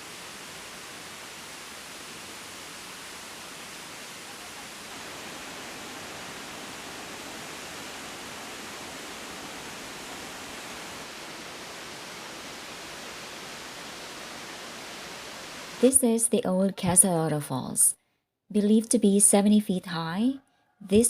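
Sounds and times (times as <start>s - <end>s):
rushing river and waterfall: 0.0s - 15.8s.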